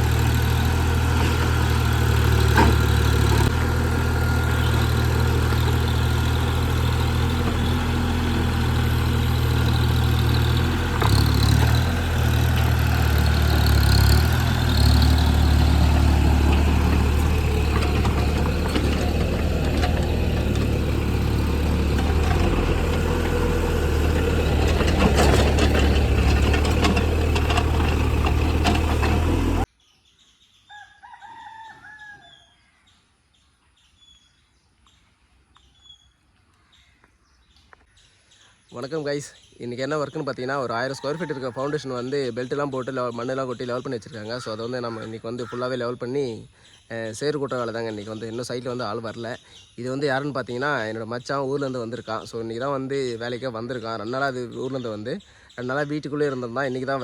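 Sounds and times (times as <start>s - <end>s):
diesel engine droning: 0.0s - 29.7s
small birds chirping: 0.0s - 30.9s, 32.2s - 57.0s
rooster crowing: 30.7s - 32.6s, 40.9s - 41.9s.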